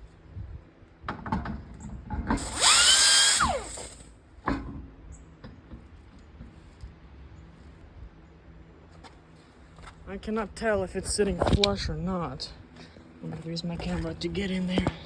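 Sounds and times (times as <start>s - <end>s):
cordless power tool whining: 2.4s - 4.1s.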